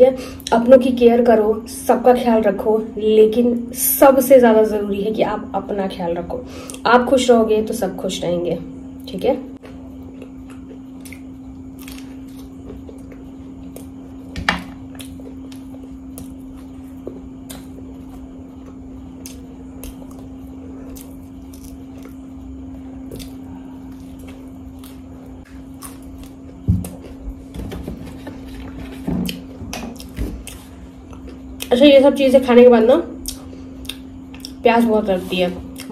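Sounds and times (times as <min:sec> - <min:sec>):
person chewing: 0:09.6 - 0:27.5, 0:28.1 - 0:31.7, 0:33.2 - 0:34.6.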